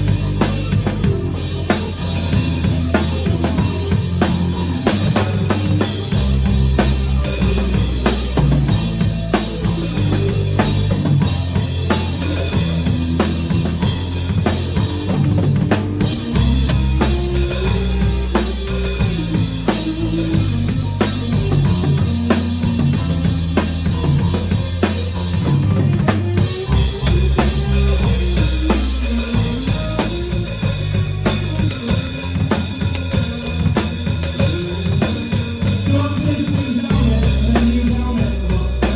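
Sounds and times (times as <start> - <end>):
bass line: 0.0 - 38.9
drum kit steady beat: 0.0 - 38.9.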